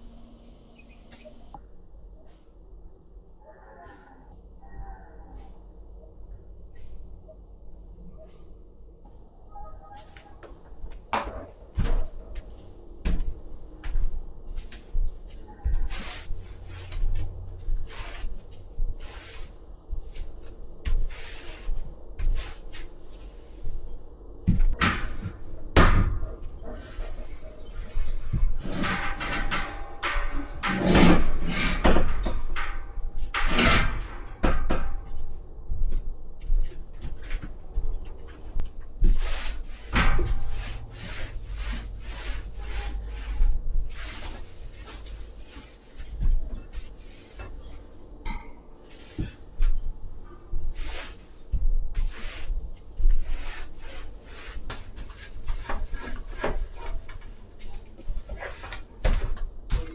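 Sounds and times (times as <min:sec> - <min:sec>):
knocks and clunks of objects: 0:10.2 - 0:18.0, 0:24.4 - 0:35.4, 0:36.7 - 0:49.8, 0:54.6 - 0:59.9
objects scraping: 0:26.5 - 0:35.1, 0:38.3 - 0:49.5, 0:53.2 - 0:59.0.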